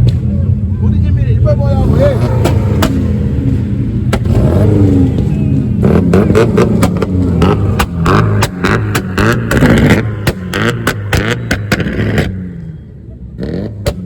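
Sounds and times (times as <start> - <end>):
car engine revving hard: 1.7 - 12.6.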